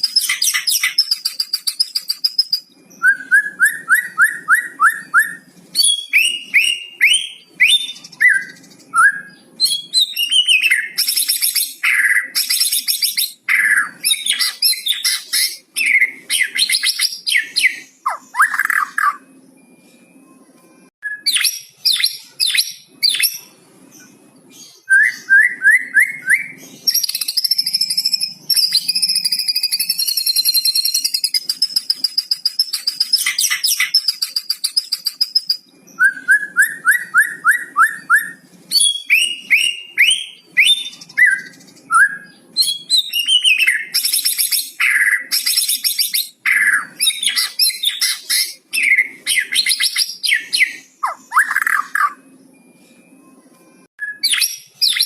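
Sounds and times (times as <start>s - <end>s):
songbird singing varied song: 21.0s - 52.4s.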